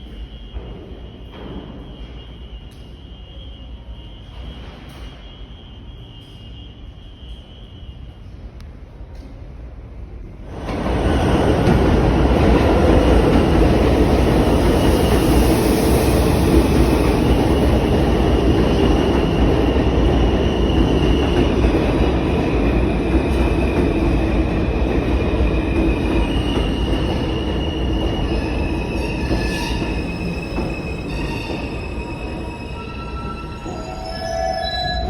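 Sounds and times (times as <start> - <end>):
subway train rumbling on rails: 0.0 - 35.0
high wheel squeals: 26.2 - 35.0.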